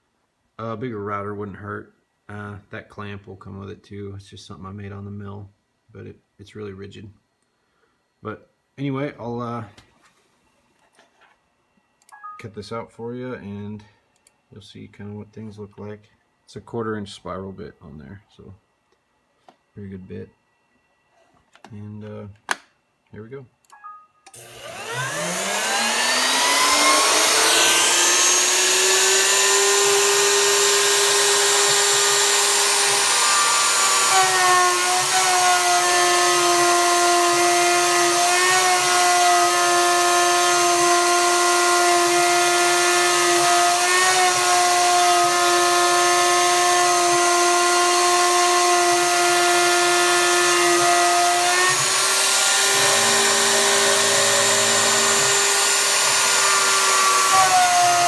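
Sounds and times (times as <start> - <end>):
bit cutting into plywood: 24.3 - 58.0
router motor whining: 24.3 - 58.0.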